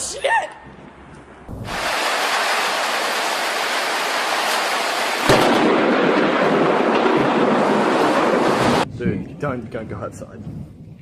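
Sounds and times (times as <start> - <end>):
thunder rumbling: 0.6 - 10.9
rain hissing: 1.5 - 8.9
loud thunderclap: 1.5 - 9.4.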